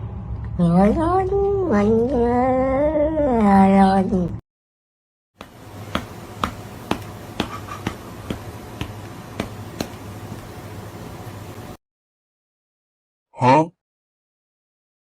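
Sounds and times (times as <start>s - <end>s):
steady low hum: 5.4s - 11.8s.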